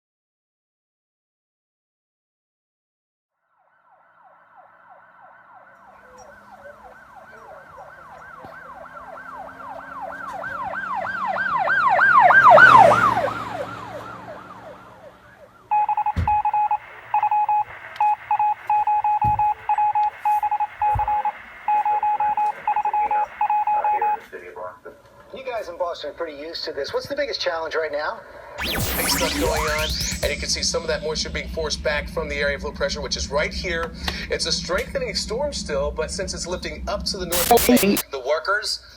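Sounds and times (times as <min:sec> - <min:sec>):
emergency vehicle siren wailing: 0:03.6 - 0:24.2, 0:27.8 - 0:38.0
electronic beeping tone: 0:15.7 - 0:24.2, 0:28.4 - 0:31.8, 0:37.3 - 0:38.0.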